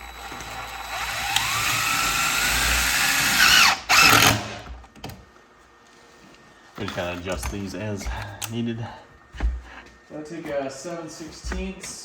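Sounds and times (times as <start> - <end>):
cordless drill driving screws: 0.0 - 4.7.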